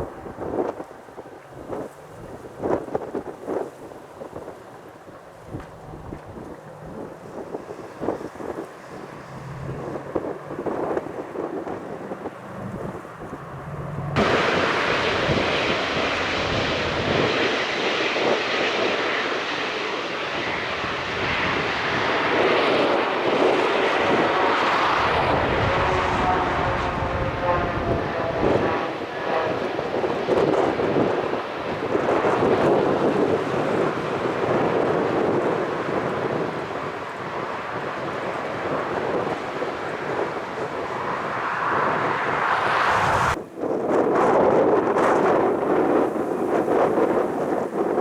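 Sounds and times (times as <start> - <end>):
jet engines rumbling: 0.0 - 48.0
whining engine tone: 8.0 - 17.3, 22.4 - 30.7.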